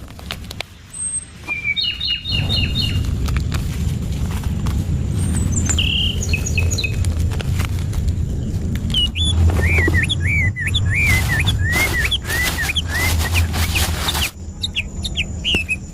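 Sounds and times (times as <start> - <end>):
scattered crackles: 0.0 - 1.6, 2.3 - 15.8
steady low rumble: 0.0 - 15.9
birds chirping and whistling: 0.8 - 3.2, 5.0 - 7.4, 8.2 - 15.9.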